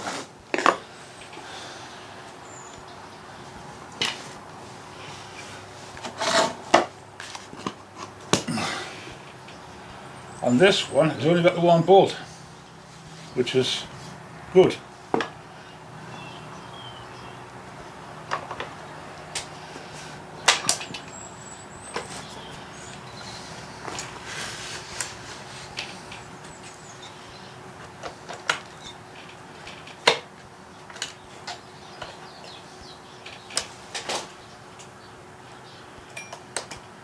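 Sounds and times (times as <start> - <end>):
rustling: 19.7 - 29.9.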